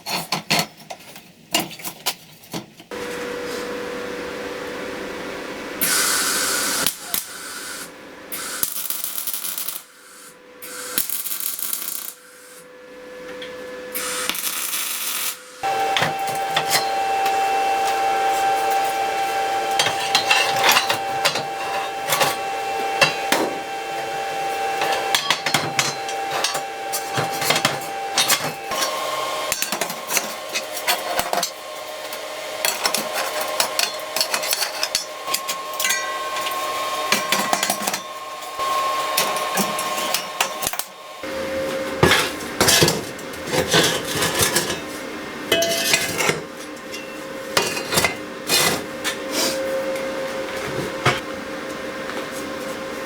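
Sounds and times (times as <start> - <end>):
hissing bursts: 5.8 - 12.6
machine hum: 15.4 - 42.6.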